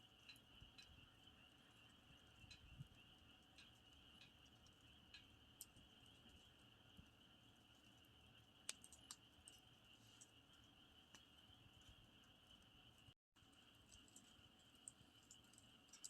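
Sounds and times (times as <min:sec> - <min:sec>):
crickets chirring: 0:00.0 - 0:13.1
campfire crackling and popping: 0:01.7 - 0:10.4.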